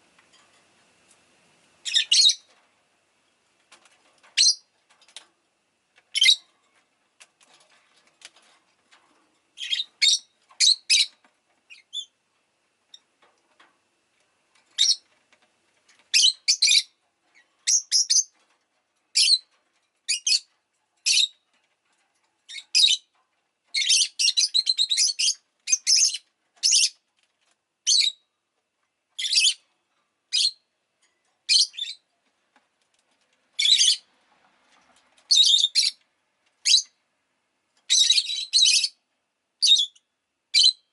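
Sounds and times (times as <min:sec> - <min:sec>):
lovebird shrill chirps: 0:01.8 - 0:02.4, 0:35.3 - 0:36.0.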